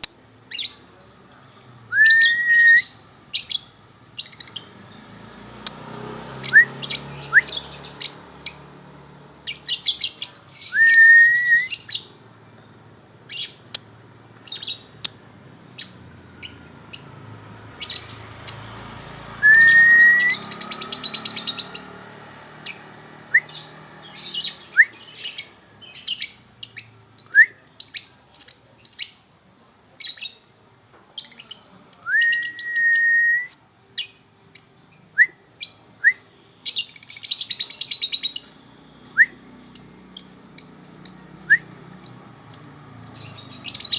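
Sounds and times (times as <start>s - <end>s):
songbird chirps and trills: 0.0s - 43.9s
rising bird whistle: 1.9s - 3.0s, 6.4s - 8.2s, 9.5s - 12.1s, 19.4s - 21.9s, 22.7s - 25.5s, 32.0s - 33.6s, 38.1s - 39.5s, 41.5s - 41.8s.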